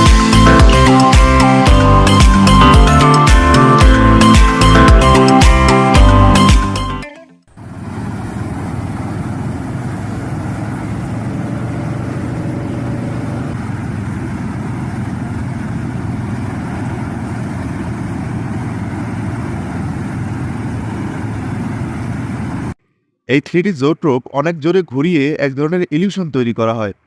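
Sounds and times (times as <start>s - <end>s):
mechanical whirring rumble: 7.6s - 22.8s.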